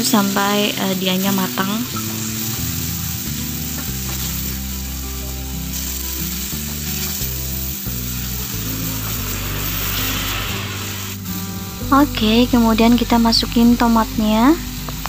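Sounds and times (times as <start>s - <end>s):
meat sizzling in a frying pan: 0.0s - 15.0s
background music with bass line: 1.6s - 15.0s.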